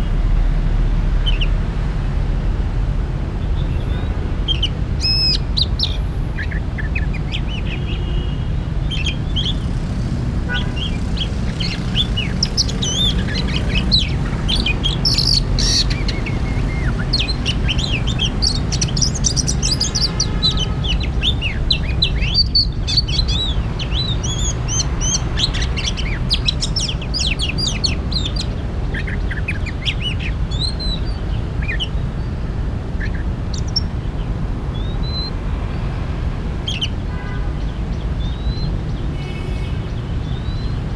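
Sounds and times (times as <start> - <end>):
bird singing whistled notes: 10.8 - 32.0, 34.7 - 35.4, 38.2 - 38.8, 40.2 - 40.8.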